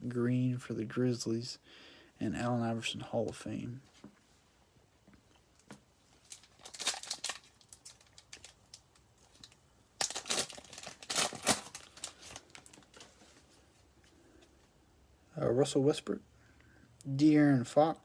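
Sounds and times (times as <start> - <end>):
foil wrapper tearing and crinkling: 6.2 - 13.1.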